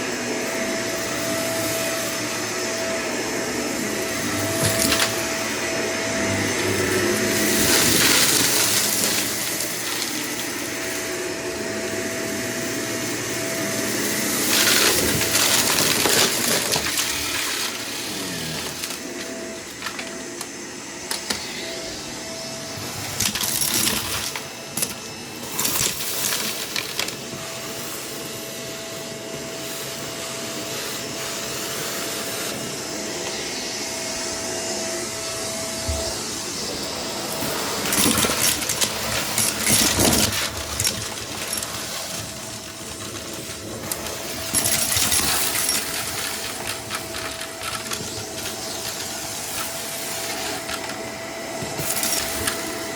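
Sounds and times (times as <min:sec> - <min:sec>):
vacuum cleaner running: 0:00.0 - 0:52.9
debris clicking and rattling: 0:04.4 - 0:05.4, 0:07.3 - 0:10.2, 0:14.4 - 0:17.8, 0:23.1 - 0:27.1, 0:37.4 - 0:51.0, 0:51.6 - 0:52.8.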